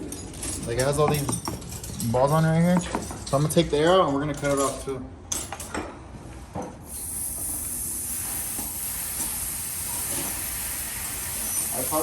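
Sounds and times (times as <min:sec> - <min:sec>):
air hissing from tire valve: 0:06.9 - 0:12.0.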